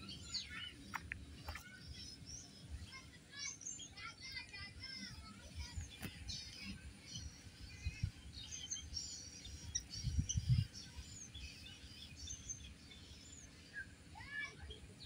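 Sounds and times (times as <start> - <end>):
birds chirping and singing: 0.0 - 15.0.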